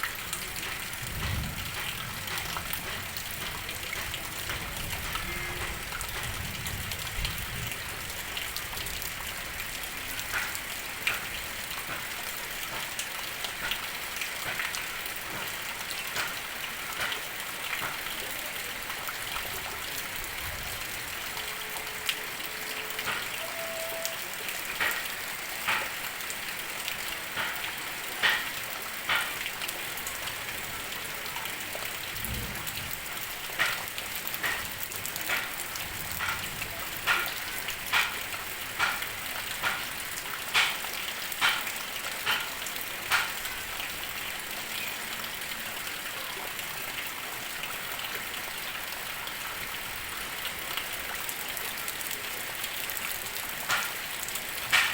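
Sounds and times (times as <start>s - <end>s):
heavy rain hiss: 0.0s - 54.9s.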